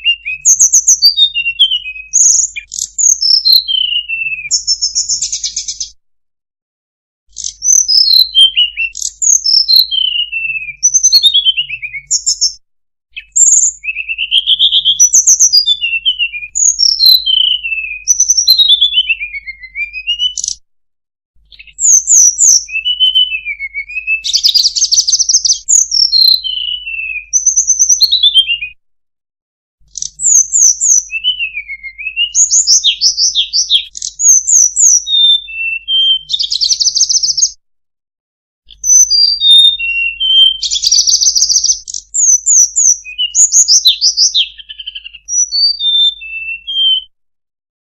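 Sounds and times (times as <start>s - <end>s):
bird whistling high thin phrases: 0.0s - 6.0s, 7.3s - 12.6s, 13.2s - 20.6s, 21.5s - 28.8s, 29.9s - 37.6s, 38.7s - 47.2s.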